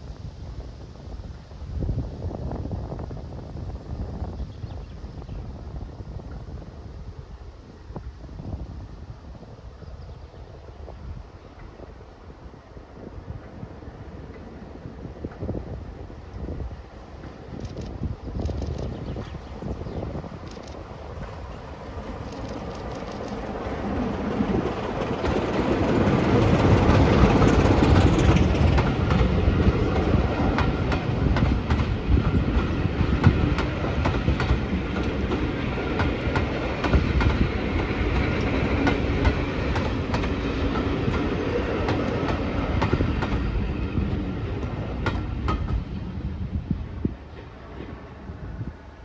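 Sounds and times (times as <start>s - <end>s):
diesel locomotive engine: 10.4s - 49.0s
train wheels clickety-clack: 20.4s - 46.2s.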